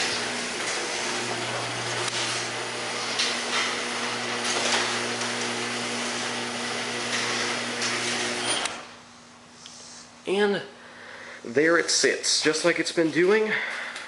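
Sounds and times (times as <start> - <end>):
garage door clattering: 0.0 - 8.8
garage door motor hum: 0.0 - 9.1.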